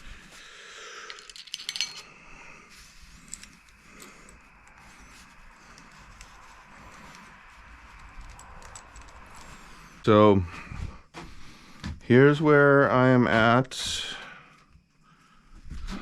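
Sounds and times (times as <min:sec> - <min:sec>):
metal hardware clinking: 0:01.1 - 0:02.1.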